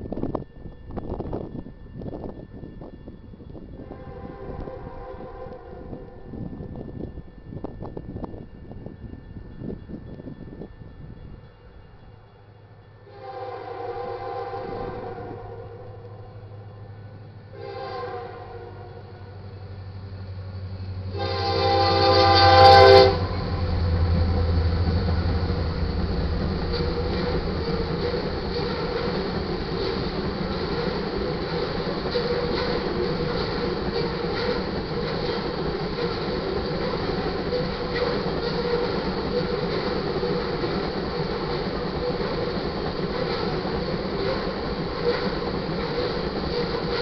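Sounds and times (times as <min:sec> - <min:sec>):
locomotive engine rumble: 0:00.0 - 0:47.0
train cars passing: 0:00.0 - 0:47.0
locomotive air horn blast: 0:03.8 - 0:06.1, 0:13.1 - 0:16.2, 0:17.5 - 0:19.4, 0:21.1 - 0:24.0.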